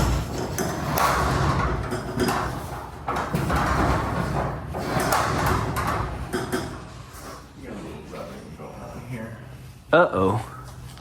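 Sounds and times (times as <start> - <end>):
garage door rolling on tracks: 0.0 - 8.4.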